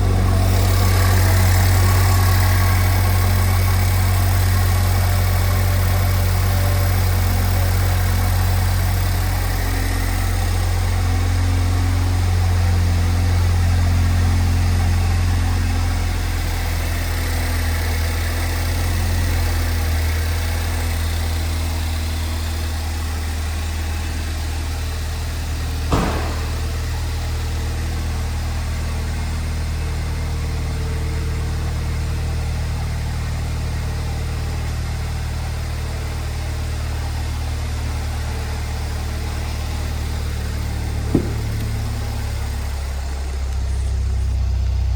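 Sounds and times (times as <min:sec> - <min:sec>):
car engine idling: 0:00.0 - 0:44.9
sharp click: 0:25.9 - 0:26.9.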